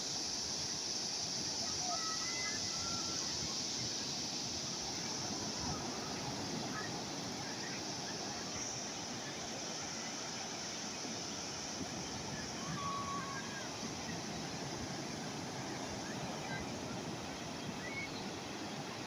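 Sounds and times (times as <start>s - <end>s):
calm sea waves washing: 0.0s - 19.0s.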